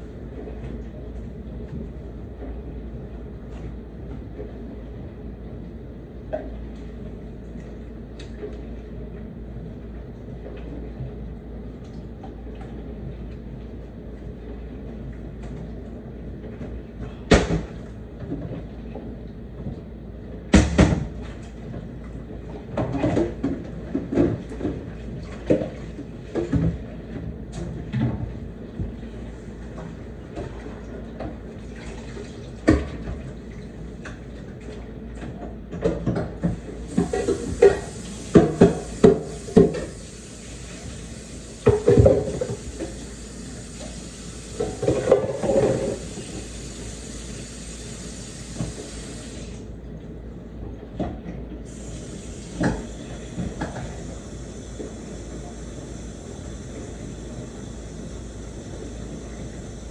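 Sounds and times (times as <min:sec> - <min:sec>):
faucet running into sink: 0:36.9 - 0:49.6, 0:51.7 - 0:59.8.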